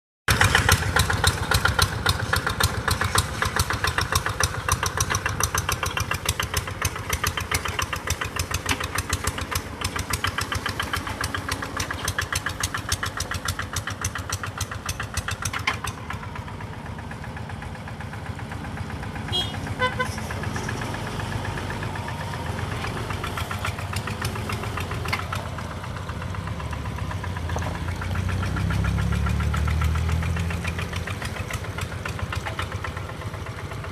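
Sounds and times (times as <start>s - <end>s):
engine knocking rapidly: 0.3s - 33.9s.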